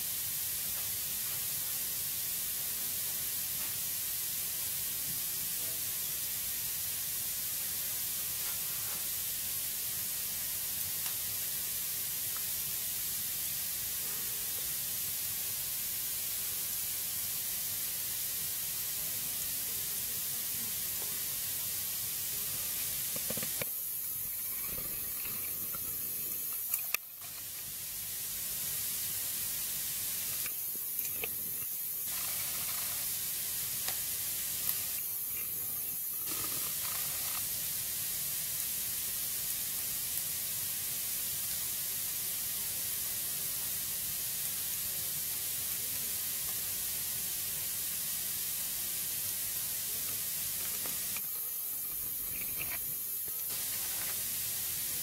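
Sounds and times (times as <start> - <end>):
wood fire crackling: 7.2 - 12.8, 19.3 - 41.8, 45.6 - 55.0.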